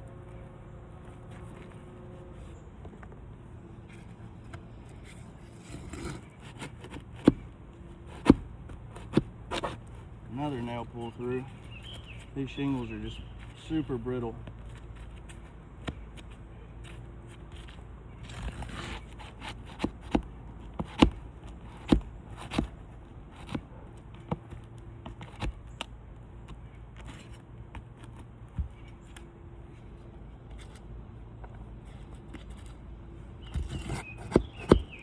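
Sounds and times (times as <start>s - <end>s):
tool scraping shingles: 3.8s - 30.9s, 31.6s - 35.0s
nails pried from shingles: 5.6s - 10.0s, 17.5s - 29.0s, 33.4s - 35.0s.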